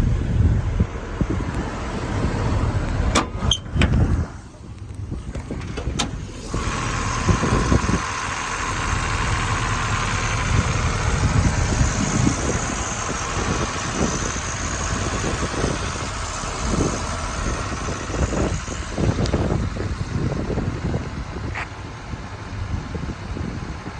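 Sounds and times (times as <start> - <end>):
truck engine rumbling: 0.0 - 23.9.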